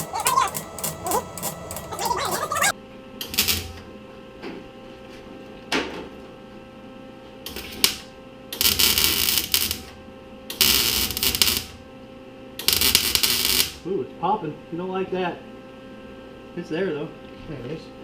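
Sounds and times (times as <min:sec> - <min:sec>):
welder crackling in bursts: 0:00.0 - 0:02.7.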